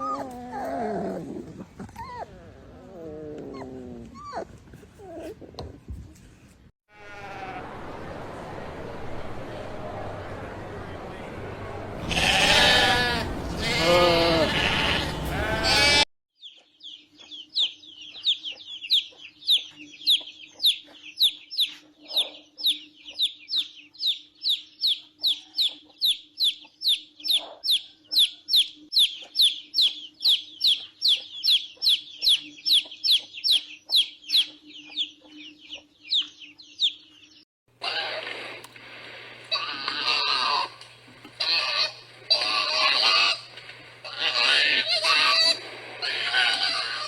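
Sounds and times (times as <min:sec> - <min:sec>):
loud harsh animal call: 0:12.0 - 0:16.0, 0:37.8 - 0:38.6, 0:39.5 - 0:40.8, 0:41.4 - 0:47.0.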